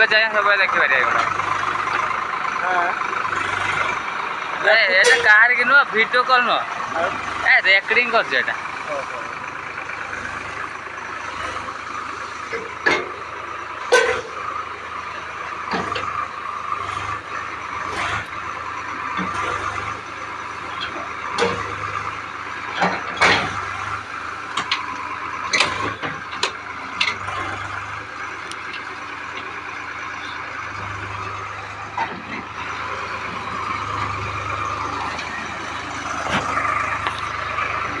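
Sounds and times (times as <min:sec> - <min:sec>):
tractor engine running: 0:00.0 - 0:38.0
sharp knocks and clanks: 0:04.8 - 0:06.3, 0:12.5 - 0:14.5, 0:20.8 - 0:22.0, 0:22.7 - 0:27.6.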